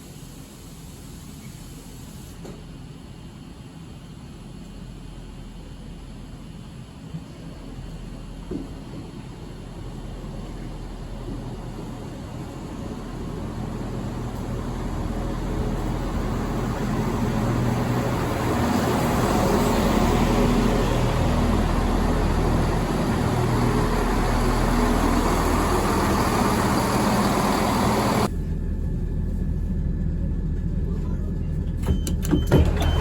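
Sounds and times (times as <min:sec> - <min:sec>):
train engine hum: 0:00.0 - 0:33.0
train rushing noise: 0:07.0 - 0:28.4.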